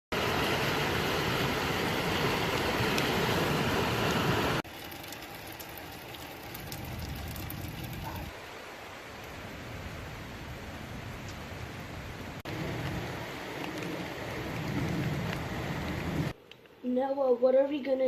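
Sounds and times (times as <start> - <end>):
steady rain falling: 0.1 - 16.4
drip ticks: 4.7 - 8.2.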